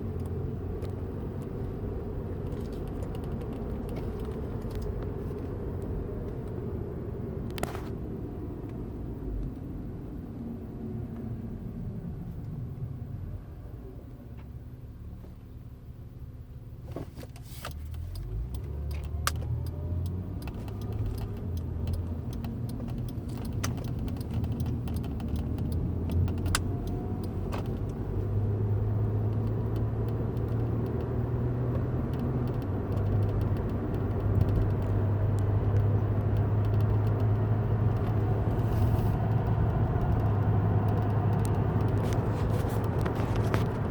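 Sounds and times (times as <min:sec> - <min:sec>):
road and engine rumble in car: 0:00.0 - 0:43.9
light clicks and rattles: 0:17.2 - 0:28.0.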